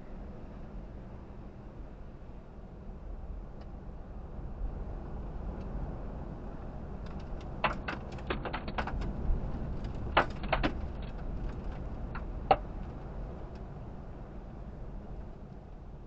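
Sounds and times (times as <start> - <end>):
sharp ticks and knocks on vehicle: 7.0 - 13.6.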